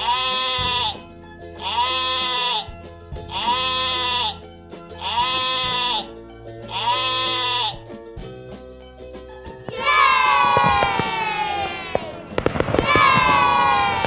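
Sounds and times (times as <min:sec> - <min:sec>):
sheep bleating: 0:00.0 - 0:01.0, 0:01.6 - 0:04.4, 0:05.0 - 0:06.1, 0:06.7 - 0:07.9, 0:09.7 - 0:14.0
background music: 0:00.0 - 0:14.0.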